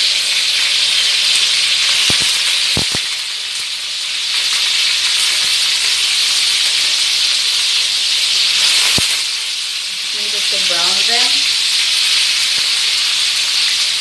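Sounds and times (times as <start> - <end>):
chicken sizzling in oil: 0.0 - 14.0.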